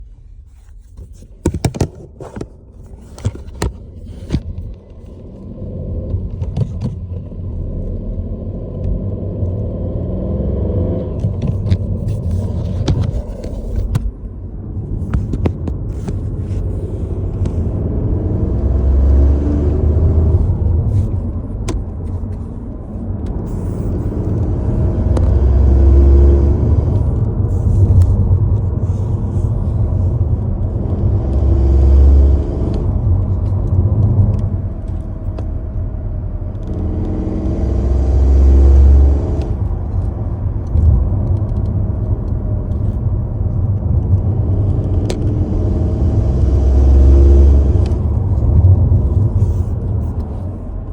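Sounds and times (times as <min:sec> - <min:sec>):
car driving low rumble: 0:00.0 - 0:50.9.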